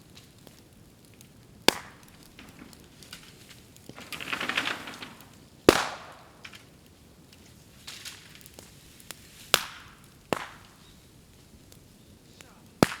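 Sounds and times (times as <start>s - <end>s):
fire crackling and hissing: 0.0s - 13.0s
bamboo bursting with loud bang: 5.7s - 6.4s.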